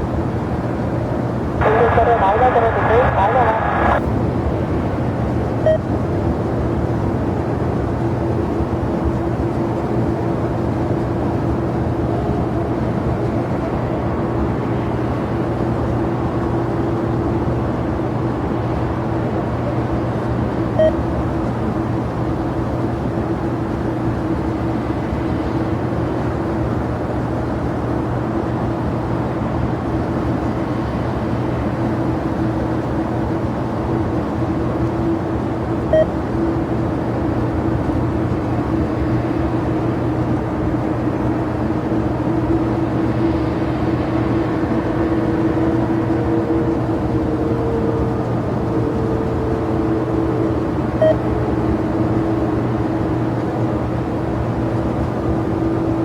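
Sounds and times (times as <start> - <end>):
jet engines droning: 0.0 - 56.0
short beeps: 5.6 - 5.9, 20.8 - 21.0, 35.9 - 36.1, 51.0 - 51.2.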